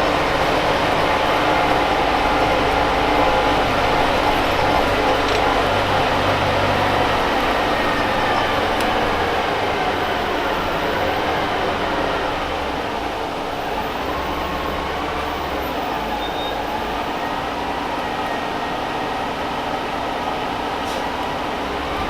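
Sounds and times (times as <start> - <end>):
bus engine drone with whine: 0.0 - 22.0.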